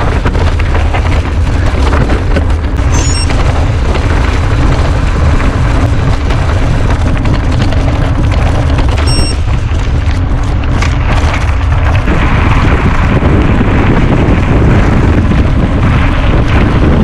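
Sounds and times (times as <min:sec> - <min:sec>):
mountain bike rattling: 0:00.0 - 0:17.0
wind buffeting microphone: 0:00.0 - 0:17.0
short high beep: 0:02.9 - 0:03.3, 0:09.0 - 0:09.4.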